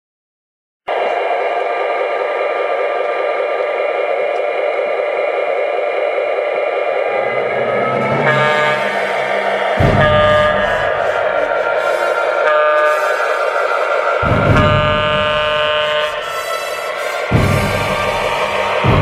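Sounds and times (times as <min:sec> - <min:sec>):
deep rumble: 0:02.0 - 0:12.3
loud whistle-like tone: 0:05.3 - 0:19.0.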